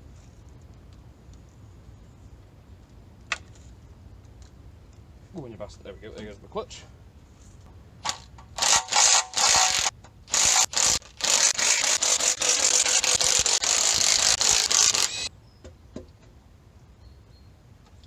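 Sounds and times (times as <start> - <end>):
power tool running in bursts: 8.6 - 15.3.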